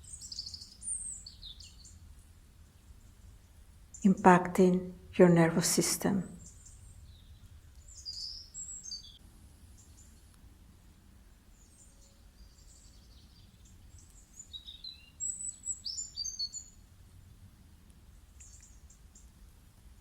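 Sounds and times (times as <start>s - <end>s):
birds chirping: 4.0s - 9.2s.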